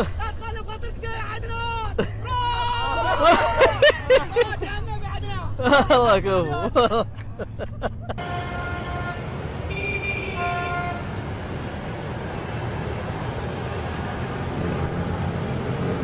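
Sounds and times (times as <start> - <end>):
traffic engines running: 0.0 - 16.0
vehicle horn blasts: 8.2 - 11.2.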